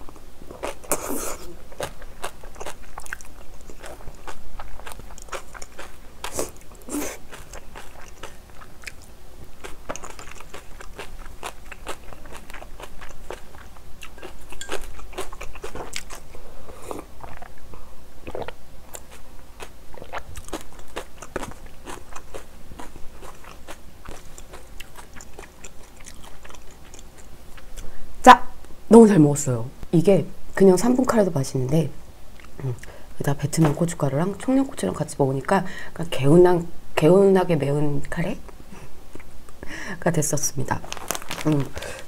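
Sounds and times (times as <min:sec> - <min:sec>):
person chewing food: 0:00.0 - 0:28.0, 0:32.3 - 0:33.0, 0:40.8 - 0:42.0.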